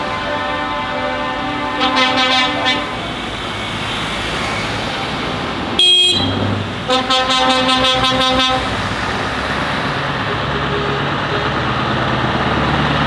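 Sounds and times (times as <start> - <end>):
lorry air horn: 0.0 - 5.1, 5.8 - 9.0
truck engines running: 0.0 - 13.0.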